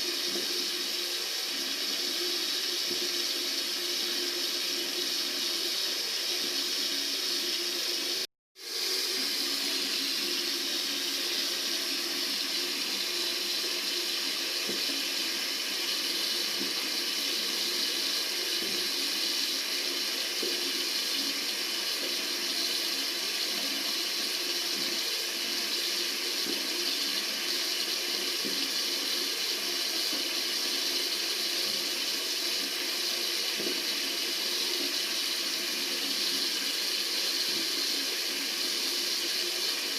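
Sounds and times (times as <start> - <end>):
tap water running into sink: 0.0 - 39.9.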